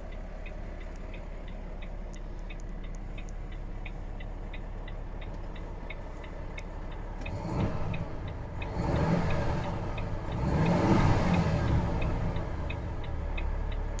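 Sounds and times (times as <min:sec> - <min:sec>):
light regular ticking: 0:00.0 - 0:14.0
truck diesel engine revving: 0:05.2 - 0:14.0.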